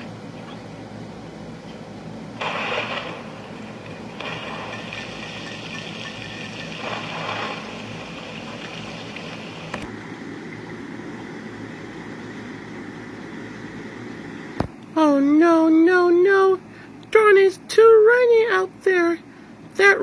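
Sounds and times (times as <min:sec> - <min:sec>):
steady rain: 0:02.4 - 0:09.9.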